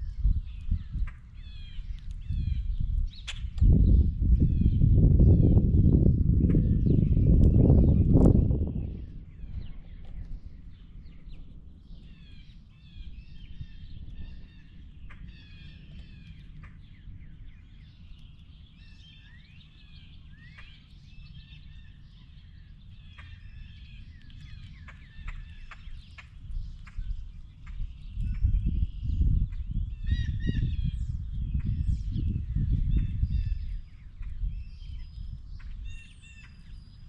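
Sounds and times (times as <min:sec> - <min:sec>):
small birds chirping: 0:00.0 - 0:37.0
steady low rumble: 0:00.0 - 0:37.0.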